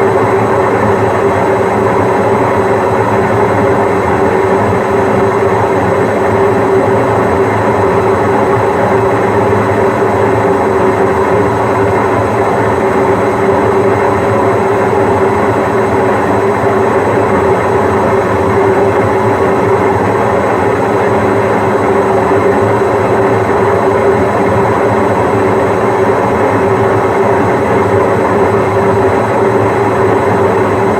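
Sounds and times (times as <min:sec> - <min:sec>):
washing machine spinning: 0:00.0 - 0:30.9.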